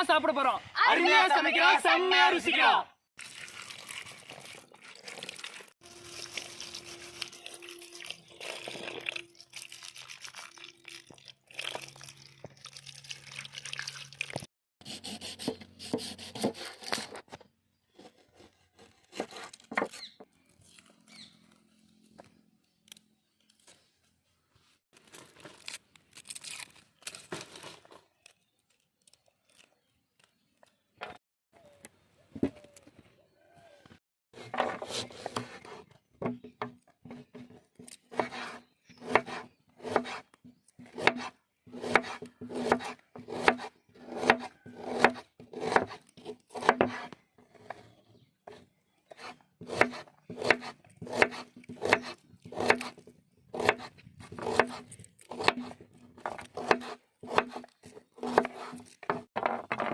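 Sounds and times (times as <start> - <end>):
knife chopping on a board: 40.8 - 47.1, 49.2 - 52.9, 53.6 - 55.8, 56.6 - 57.6.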